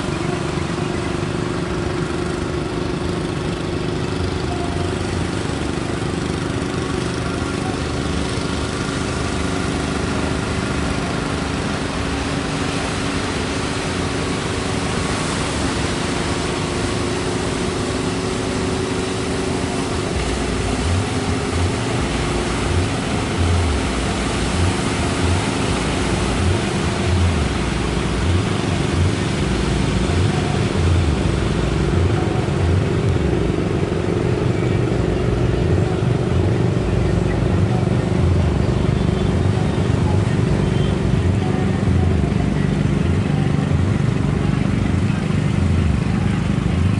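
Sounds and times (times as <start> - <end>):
low rumbles: 0.0 - 46.9
motor engine running: 0.0 - 46.9
surf and wind: 5.2 - 35.0.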